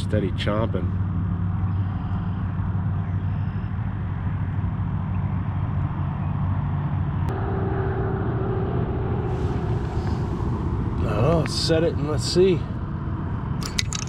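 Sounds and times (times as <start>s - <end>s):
higher steady tone: 7.3s - 13.4s.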